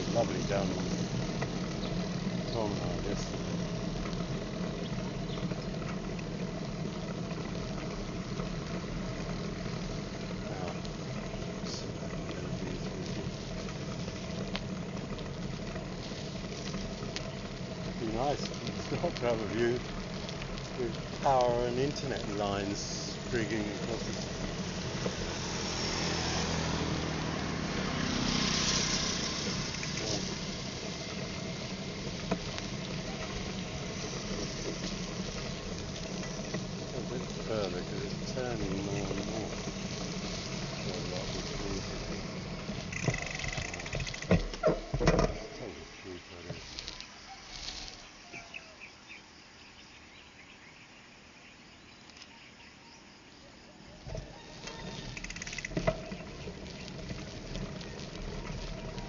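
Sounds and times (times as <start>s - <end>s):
motorcycle engine running: 0.0s - 45.7s, 54.0s - 59.0s
steady low hiss: 0.0s - 59.0s
small animals chirping: 0.1s - 6.1s, 32.4s - 44.9s, 54.0s - 59.0s.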